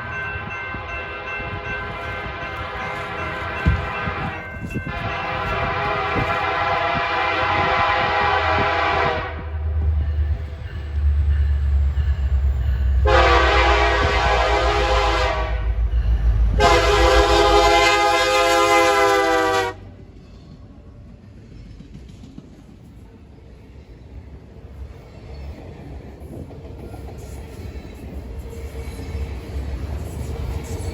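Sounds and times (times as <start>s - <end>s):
locomotive air horn blasts: 0.8s - 9.5s, 13.0s - 15.8s, 16.6s - 19.8s.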